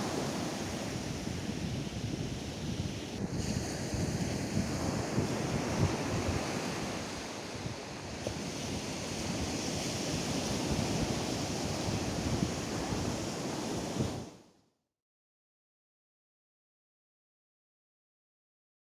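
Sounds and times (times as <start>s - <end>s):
wind buffeting microphone: 0.0s - 14.3s
surf washing up a beach: 0.0s - 14.5s.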